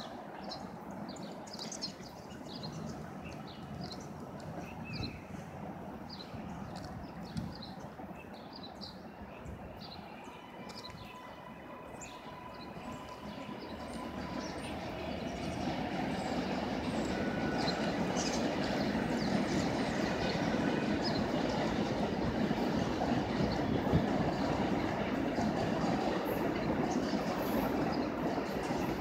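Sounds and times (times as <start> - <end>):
train rumble: 0.0 - 29.0
small birds chirping: 0.3 - 5.4, 12.0 - 22.1.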